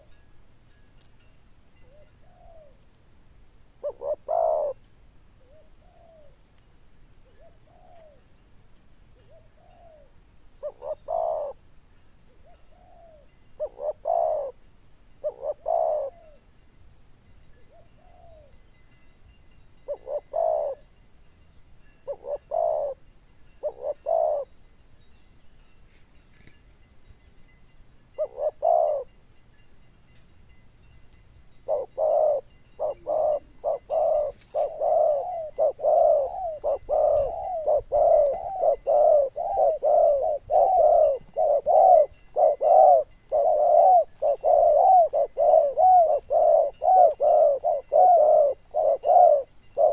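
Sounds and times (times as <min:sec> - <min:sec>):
dove cooing: 0:01.9 - 0:02.8, 0:03.8 - 0:06.4, 0:07.3 - 0:08.2, 0:09.2 - 0:11.6, 0:12.3 - 0:14.6, 0:15.2 - 0:16.4, 0:17.6 - 0:18.6, 0:19.9 - 0:20.9, 0:22.0 - 0:24.5, 0:28.2 - 0:29.1, 0:31.6 - 0:49.9.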